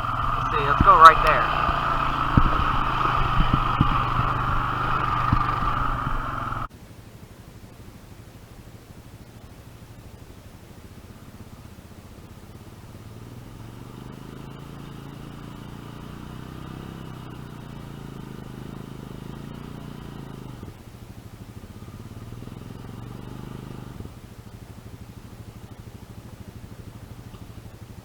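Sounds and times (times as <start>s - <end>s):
atv engine revving: 0.0s - 6.7s, 12.9s - 20.8s, 21.5s - 26.5s.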